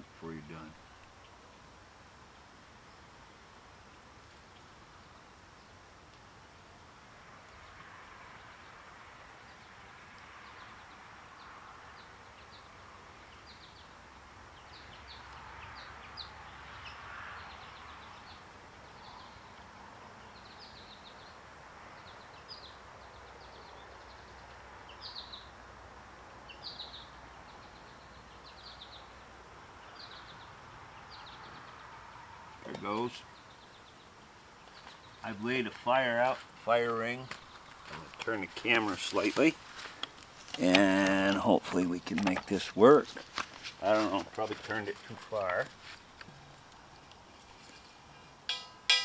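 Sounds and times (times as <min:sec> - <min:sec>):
bird chirping: 0:09.4 - 0:25.6, 0:26.4 - 0:39.4.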